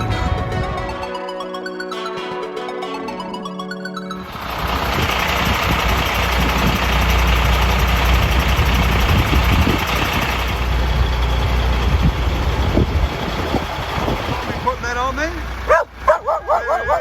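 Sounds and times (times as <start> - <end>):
large truck engine idling: 4.2 - 17.0.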